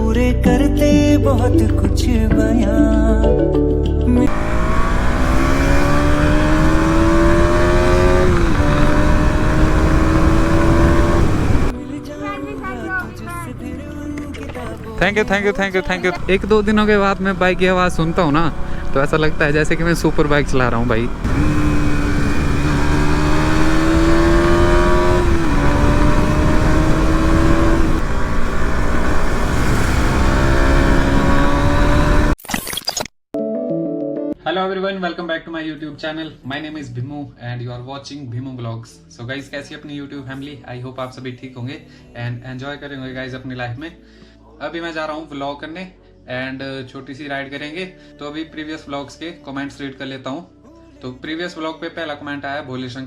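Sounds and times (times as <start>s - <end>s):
motorcycle engine accelerating: 4.2s - 13.0s, 15.0s - 32.4s.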